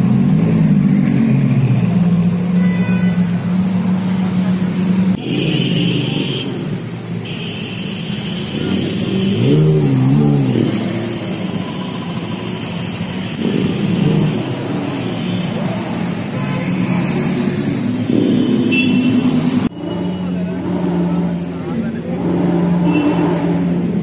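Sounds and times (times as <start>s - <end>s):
motorbikes passing: 0.0s - 24.0s
street traffic: 0.0s - 24.0s
supercar engine revving: 8.6s - 12.6s, 13.2s - 15.0s, 20.4s - 24.0s.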